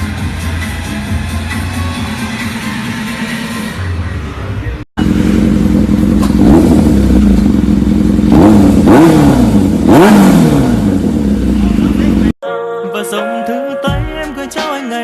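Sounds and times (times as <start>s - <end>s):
motorcycle engine revving: 5.0s - 12.4s.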